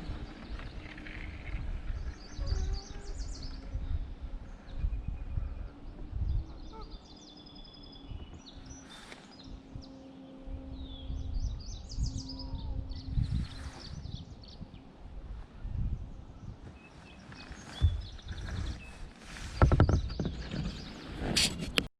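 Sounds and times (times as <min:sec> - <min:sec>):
birds singing and chirping: 0:00.0 - 0:14.9, 0:15.7 - 0:21.4
faint low hum: 0:00.0 - 0:20.8
wind rumble on microphone: 0:00.0 - 0:21.9.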